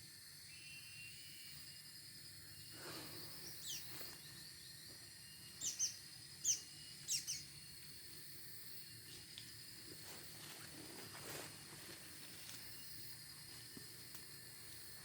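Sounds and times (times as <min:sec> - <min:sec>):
faint steady high tone: 0:00.4 - 0:02.7
small bird chirping: 0:03.3 - 0:07.8.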